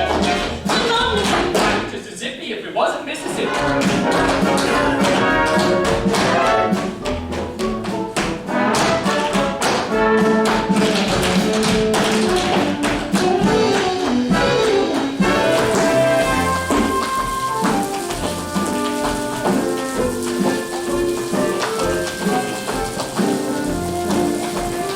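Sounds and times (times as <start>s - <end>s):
brass orchestra show tune: 0.0s - 1.9s, 3.3s - 24.9s.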